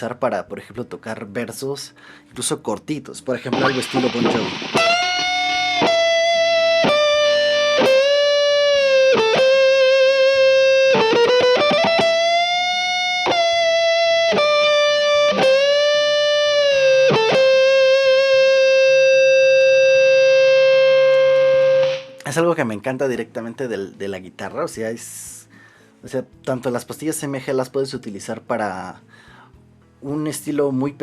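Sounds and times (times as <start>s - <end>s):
electric guitar lead with vibrato: 3.5s - 22.2s.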